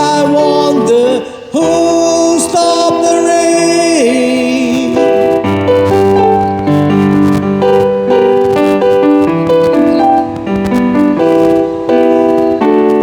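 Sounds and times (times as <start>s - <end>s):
electric keyboard chords and melody: 0.0s - 13.0s.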